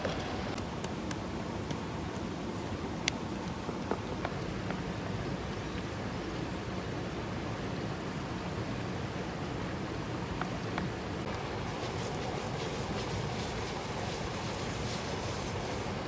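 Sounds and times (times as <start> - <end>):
fire crackles: 11.2 - 16.0
wood fire rushing: 11.3 - 16.0.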